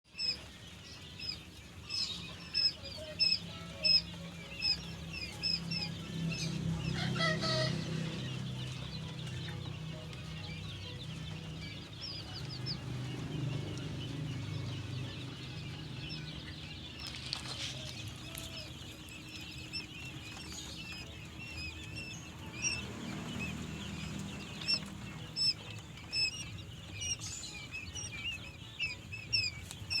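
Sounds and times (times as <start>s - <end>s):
quail chirping: 0.1s - 30.0s.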